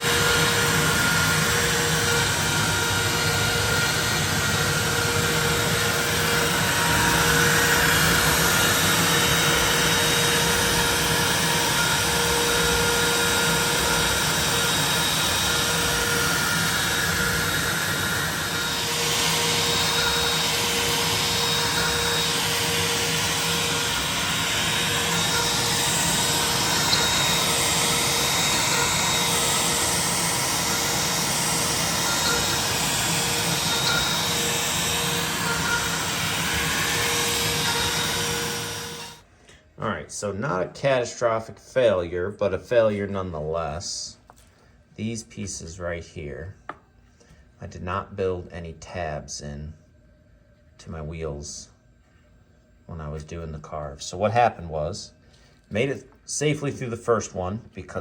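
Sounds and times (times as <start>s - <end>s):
loud rushing cutting noise: 0.0s - 39.2s
router spindle whine: 0.0s - 39.3s.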